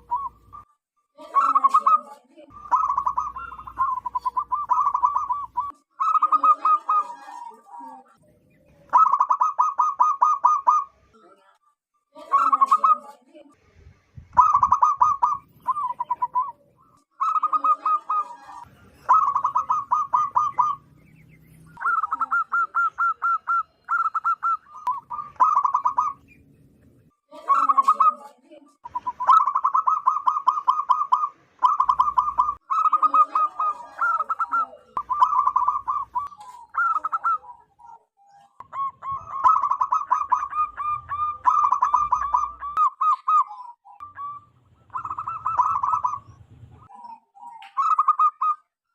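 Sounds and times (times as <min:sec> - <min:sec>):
dove cooing: 0:00.0 - 0:00.7, 0:01.3 - 0:11.0, 0:12.3 - 0:13.1, 0:14.3 - 0:26.3, 0:27.4 - 0:48.7.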